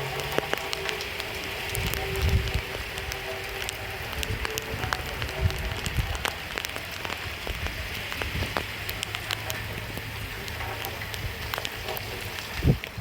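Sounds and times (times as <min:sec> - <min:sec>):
rain falling on a surface: 0:00.0 - 0:13.0.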